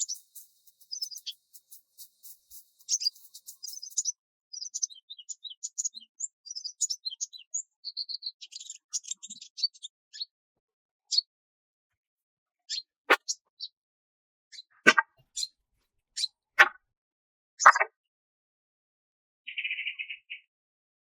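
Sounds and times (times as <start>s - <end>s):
small birds chirping: 0.0s - 10.4s, 11.1s - 11.3s, 12.7s - 13.8s, 14.5s - 15.6s, 16.2s - 16.8s, 17.6s - 17.9s, 19.5s - 20.5s.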